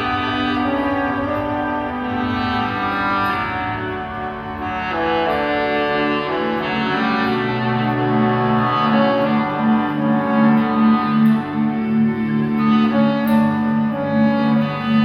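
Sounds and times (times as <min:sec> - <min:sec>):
bowed strings melody: 0:00.0 - 0:15.0
pulsing bass line: 0:06.2 - 0:15.0.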